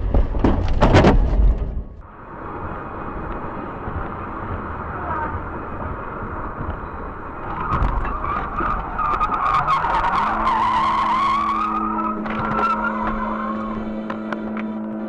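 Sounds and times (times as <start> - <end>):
sharp cracks and knocks: 0.0 - 2.0
steady tone: 2.0 - 15.0
car tyres squealing: 4.1 - 15.0.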